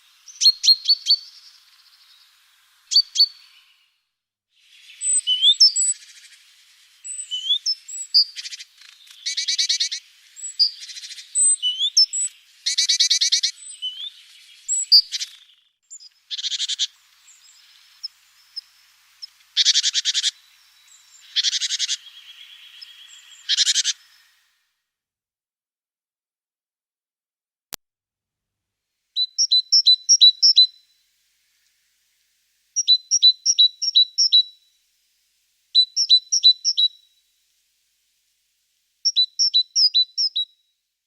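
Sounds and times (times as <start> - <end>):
songbirds chirping and whistling: 0.1 - 4.0, 4.6 - 24.6, 29.2 - 30.9, 32.8 - 34.6, 35.7 - 37.1, 39.0 - 40.5
rapid bird trills: 4.6 - 24.4.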